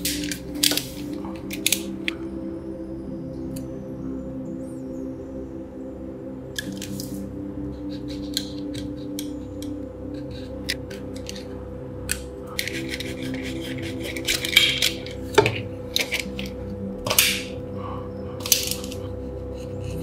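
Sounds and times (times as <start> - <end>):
background music with held notes: 0.0 - 20.0
small metal parts clinking: 18.4 - 19.1.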